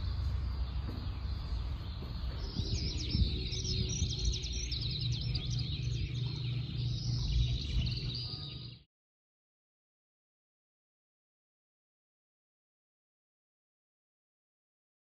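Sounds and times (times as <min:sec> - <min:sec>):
steady low rumble: 0:00.0 - 0:08.8
small birds chirping: 0:00.0 - 0:08.9.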